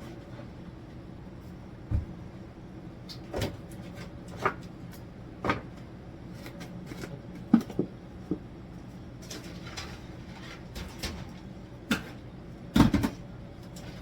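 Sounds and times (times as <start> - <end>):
steady low hum: 0.0 - 14.0
kitchen knocks and clunks: 1.9 - 2.2.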